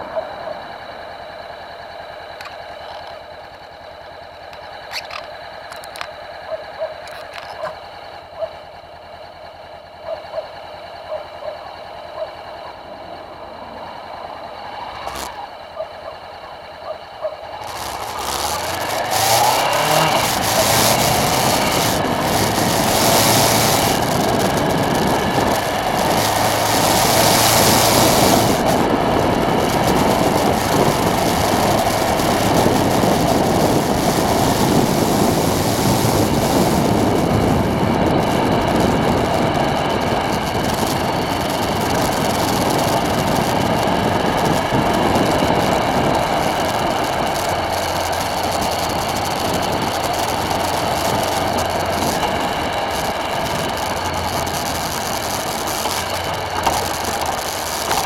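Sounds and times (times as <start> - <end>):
strong storm wind blowing: 17.6 - 58.0.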